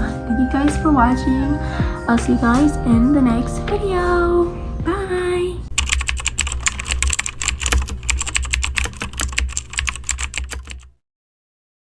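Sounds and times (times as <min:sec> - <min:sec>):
low rumble: 0:00.0 - 0:05.8
fast keyboard typing clicks: 0:05.8 - 0:10.9.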